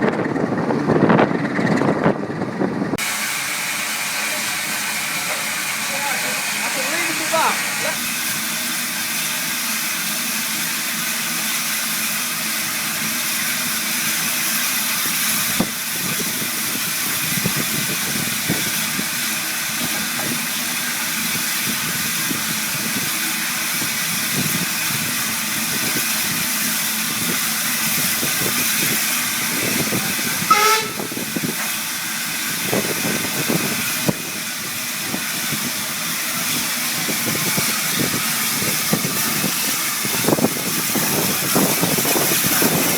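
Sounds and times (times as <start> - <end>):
steam locomotive hissing: 3.0 - 42.9.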